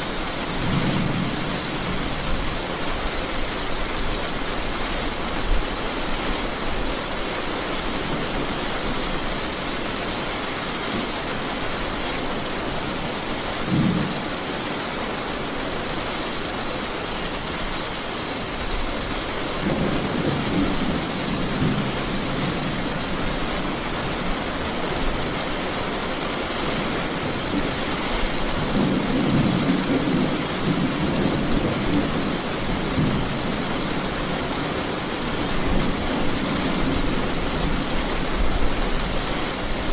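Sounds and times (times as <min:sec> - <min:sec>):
steady rain hissing: 0:00.0 - 0:39.9
thunder rumbling: 0:19.6 - 0:25.4.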